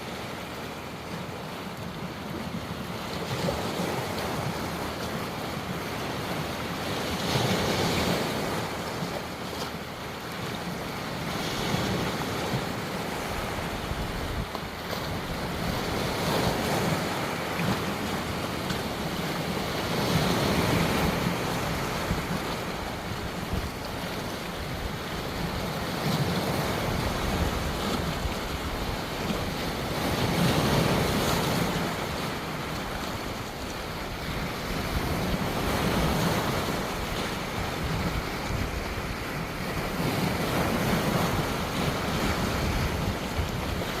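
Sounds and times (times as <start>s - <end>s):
ocean waves breaking: 0.0s - 44.0s
wind on microphone: 10.6s - 44.0s.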